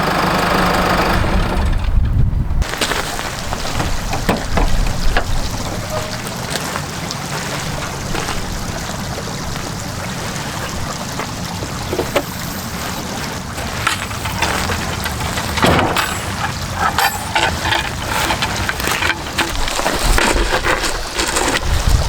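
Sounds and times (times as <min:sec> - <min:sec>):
sharp knocks and rattles: 0:00.6 - 0:06.6, 0:11.8 - 0:21.5
gusty wind on microphone: 0:01.2 - 0:06.6, 0:19.5 - 0:22.0.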